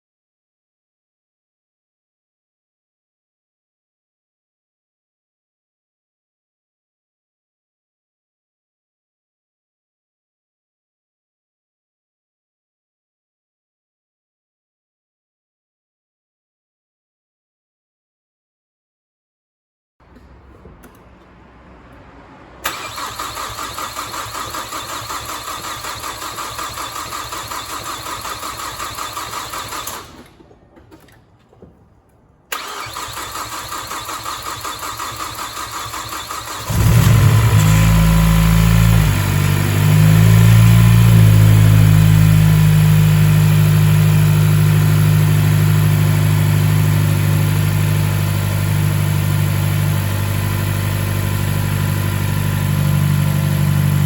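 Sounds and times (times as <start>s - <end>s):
engine starter cranking: 22.6s - 31.2s, 32.5s - 39.2s.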